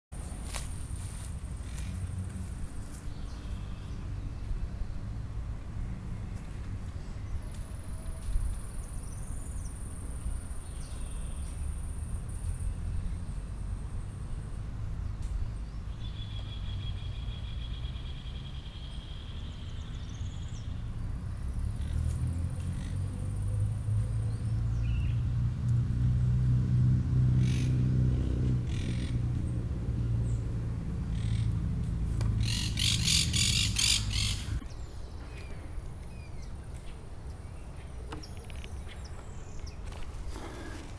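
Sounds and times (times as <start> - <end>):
birds chirping and calling: 32.3 - 37.0.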